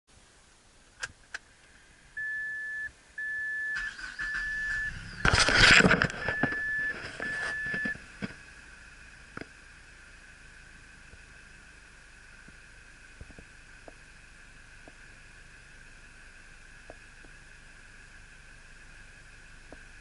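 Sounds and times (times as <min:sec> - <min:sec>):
car engine cranking and idling: 0:00.9 - 0:20.0
car warning chime beeping: 0:02.2 - 0:05.2, 0:06.1 - 0:08.1.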